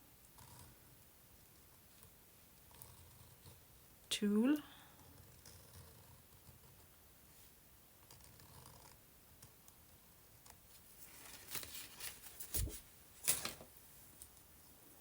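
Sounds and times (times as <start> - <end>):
paper rustling: 10.7 - 13.8.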